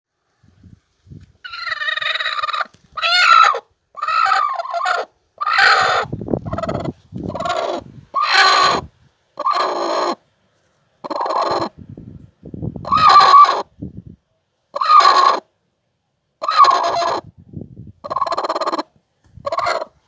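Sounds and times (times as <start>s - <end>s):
hen calling: 1.4s - 10.2s, 11.0s - 11.8s, 12.8s - 13.7s, 14.8s - 15.5s, 16.4s - 17.3s, 18.0s - 20.0s.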